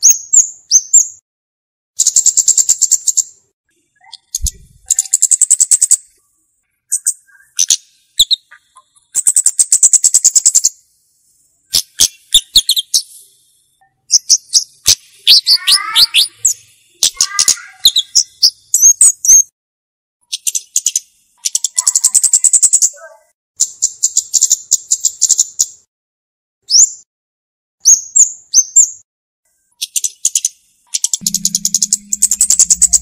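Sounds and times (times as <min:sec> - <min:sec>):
bird singing high trills: 0:13.8 - 0:19.2, 0:31.0 - 0:33.0.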